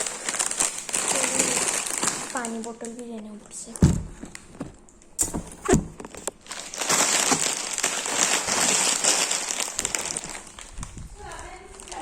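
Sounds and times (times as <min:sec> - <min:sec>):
plastic chip packets crinkling: 0:00.0 - 0:03.6, 0:06.2 - 0:12.0.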